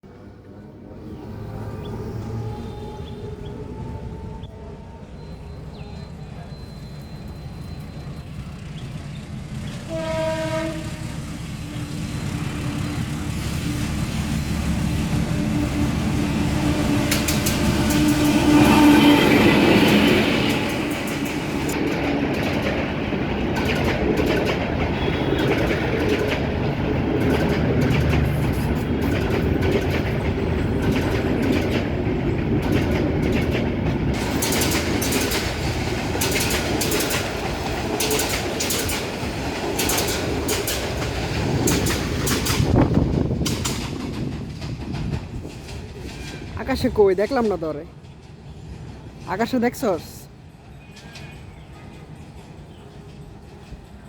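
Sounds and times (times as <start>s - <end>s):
diesel locomotive engine drone: 0.0s - 54.0s
train wheels clickety-clack: 6.7s - 54.0s
locomotive horn: 9.8s - 13.8s, 15.2s - 21.8s, 24.9s - 26.1s.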